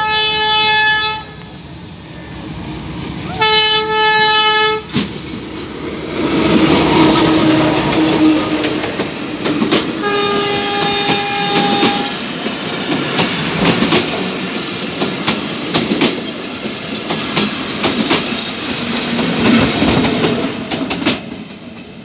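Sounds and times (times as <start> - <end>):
train horn: 0.0 - 1.5, 3.2 - 5.0, 6.6 - 9.2, 10.0 - 12.4
train coaches rumbling past: 0.0 - 22.0
wheels clacking over rail joints: 4.9 - 22.0.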